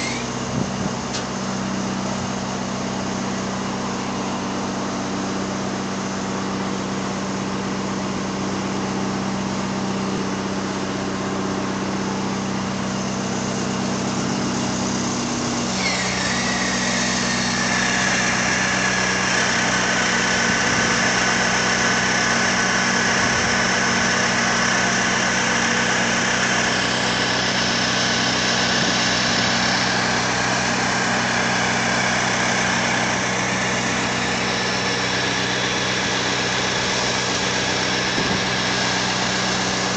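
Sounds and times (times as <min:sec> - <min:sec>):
hydraulic whine with hiss: 0:00.0 - 0:01.7, 0:12.8 - 0:39.9
truck engine idling: 0:00.0 - 0:39.9.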